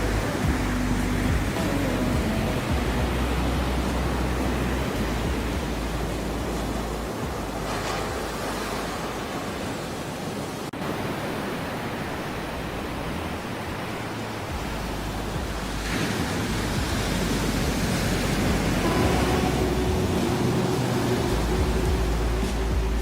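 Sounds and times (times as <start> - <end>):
sea waves rushing: 0.0 - 23.0.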